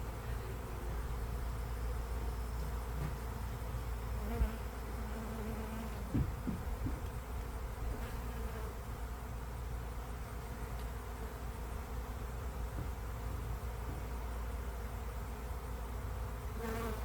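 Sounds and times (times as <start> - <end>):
honeybees buzzing: 0.0 - 8.9.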